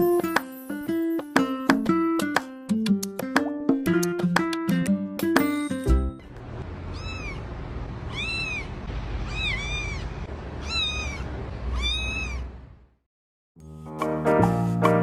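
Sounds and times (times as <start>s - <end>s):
cat meowing: 6.9s - 7.5s, 8.1s - 12.6s.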